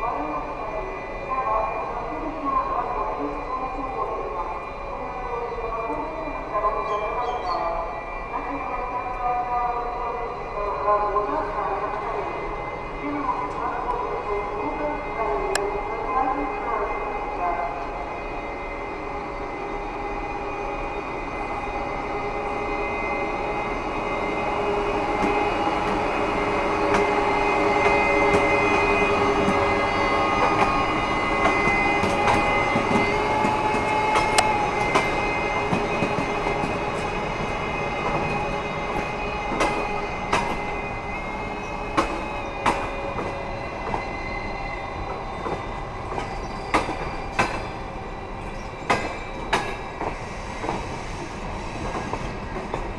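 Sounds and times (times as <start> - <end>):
train rolling past: 0.0 - 52.9
train wheels squealing: 4.5 - 9.2, 17.8 - 52.9.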